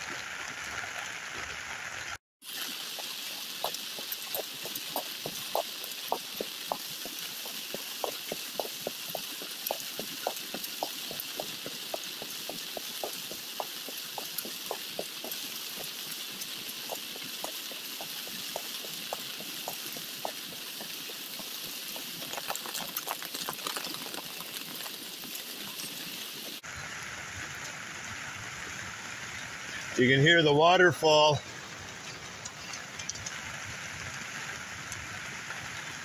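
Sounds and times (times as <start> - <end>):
flood water rushing: 0.0 - 36.0
raindrops tapping on an umbrella: 2.5 - 26.6.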